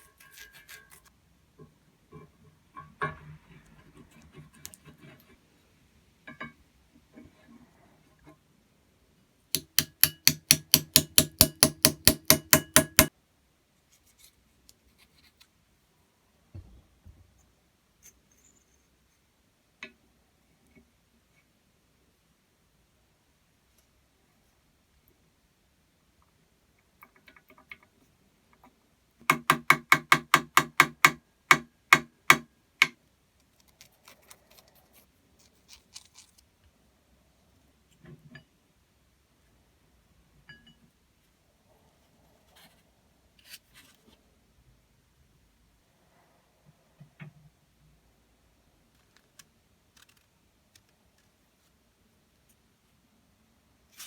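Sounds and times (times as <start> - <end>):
rapid sharp knocks: 9.6 - 13.1.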